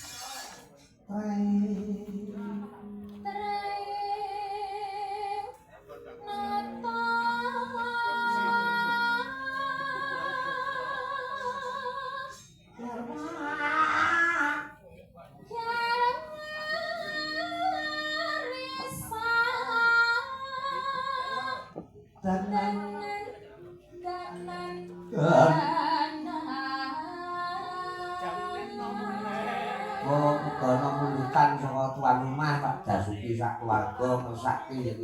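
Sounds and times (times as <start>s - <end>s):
woman singing ornamented melody: 6.2s - 12.5s, 22.5s - 31.5s.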